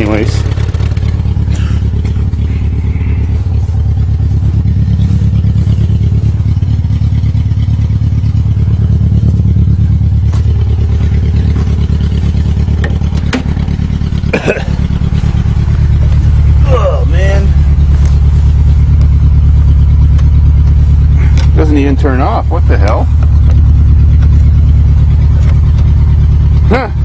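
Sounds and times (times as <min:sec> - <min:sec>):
car engine idling: 0:00.0 - 0:27.0
sharp knocks: 0:12.6 - 0:13.9.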